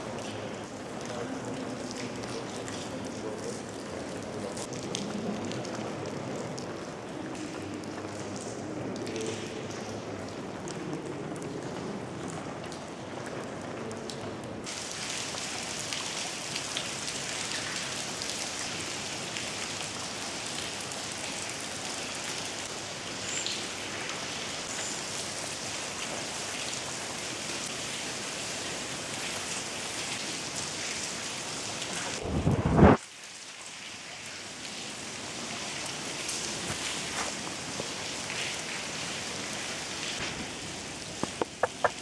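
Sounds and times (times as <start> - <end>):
rain falling and splashing: 0.0 - 42.0.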